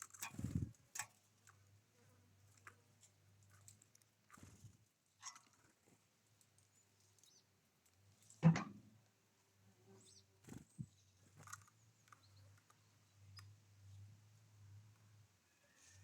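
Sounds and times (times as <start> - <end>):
faint bird chirps: 9.9 - 14.1.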